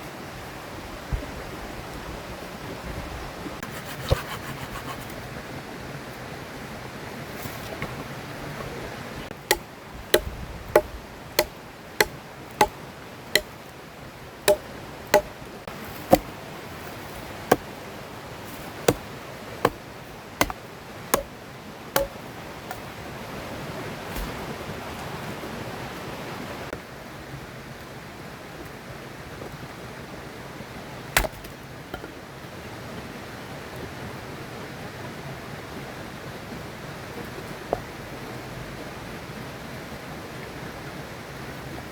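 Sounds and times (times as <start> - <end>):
sharp chopping strikes: 10.2 - 12.1, 16.1 - 16.3, 22.0 - 22.2.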